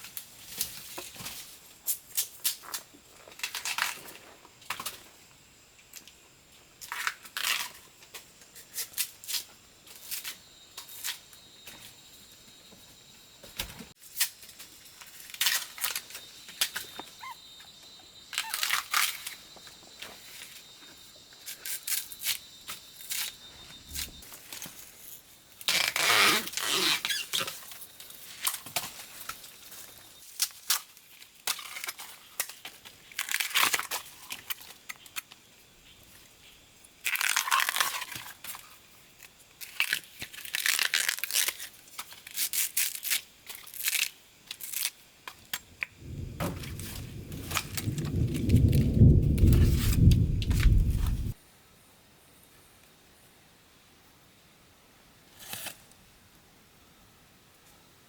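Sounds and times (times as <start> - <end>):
faint high whine: 19.0 - 24.7
dry plant material rustling: 37.0 - 38.7, 39.6 - 44.9, 46.2 - 51.4.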